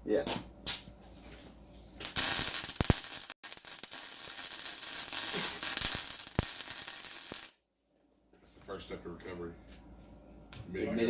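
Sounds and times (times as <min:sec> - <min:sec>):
welding arc crackling hiss: 0:02.0 - 0:07.6.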